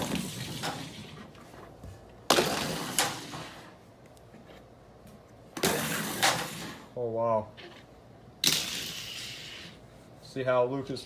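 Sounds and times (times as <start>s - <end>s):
toy cars crashing: 0.0s - 1.1s, 2.3s - 3.7s, 5.6s - 6.9s, 8.4s - 9.8s.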